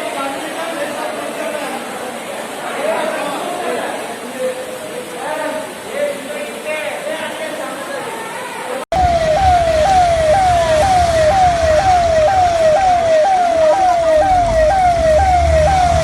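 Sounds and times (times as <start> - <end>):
emergency siren wailing: 8.9 - 16.0
low engine rumble: 9.0 - 16.0.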